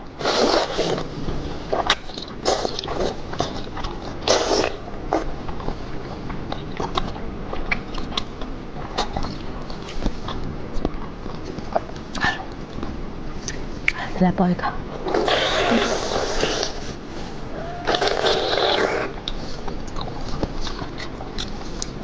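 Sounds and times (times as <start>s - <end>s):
crunchy chewing: 0.2s - 14.0s, 15.0s - 22.0s
wet mouth clicks: 1.8s - 5.7s, 17.9s - 22.0s.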